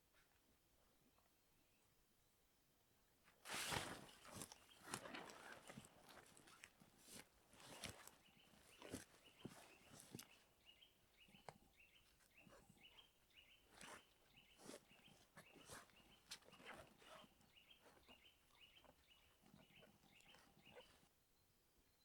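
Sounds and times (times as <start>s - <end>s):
faint rustles and clicks: 3.2s - 21.1s
faint high chirp: 8.2s - 22.0s.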